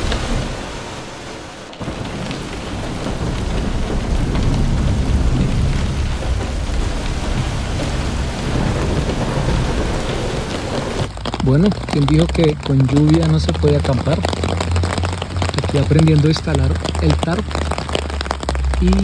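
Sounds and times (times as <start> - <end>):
rain falling: 0.0 - 19.0
heavy low rumble: 1.8 - 19.0.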